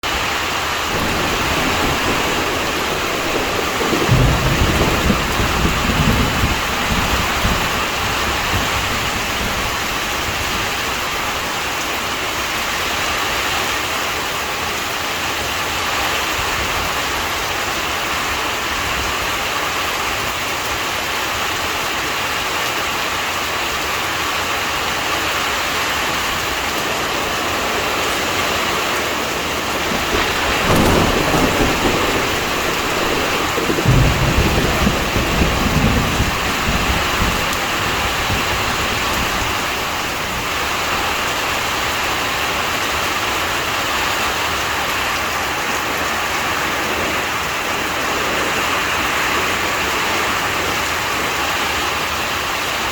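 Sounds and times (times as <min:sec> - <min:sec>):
steady rain falling: 0:00.0 - 0:52.9
low rumble of thunder: 0:00.7 - 0:13.1, 0:25.9 - 0:44.6.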